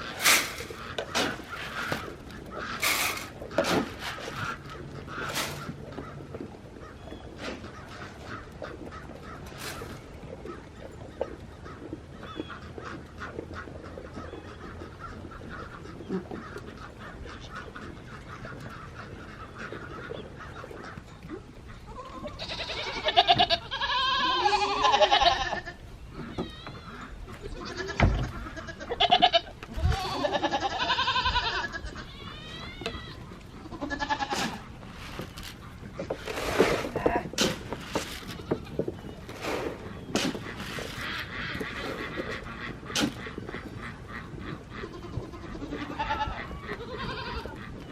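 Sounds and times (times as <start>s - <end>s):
goats bleating loudly: 21.8s - 34.6s, 44.8s - 47.7s.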